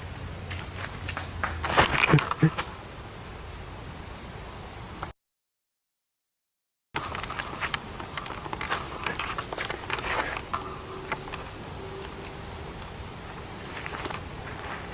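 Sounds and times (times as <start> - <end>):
clicks and crackling rustle: 0.0 - 2.8, 7.0 - 14.9
faint low hum: 7.0 - 14.9.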